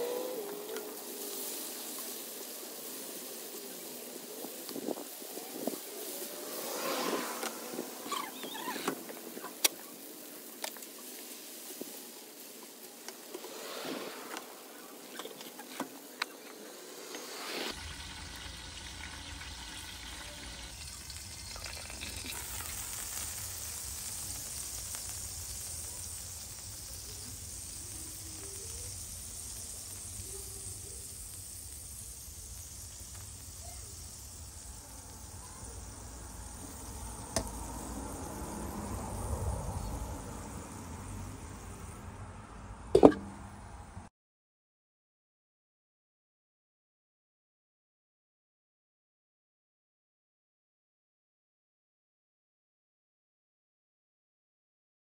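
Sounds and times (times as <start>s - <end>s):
food sizzling on hot plate: 0.0s - 42.2s.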